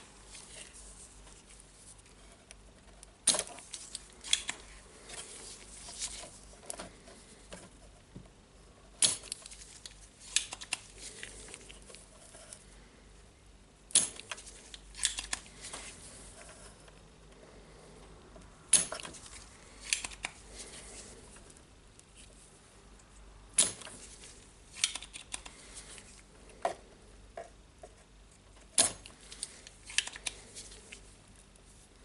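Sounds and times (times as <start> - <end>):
rustling and scraping: 0.0 - 8.4, 9.3 - 12.9, 14.3 - 17.0, 19.0 - 22.6, 23.8 - 24.6
hand tools clicking on circuit board: 19.9 - 20.4, 24.8 - 25.6.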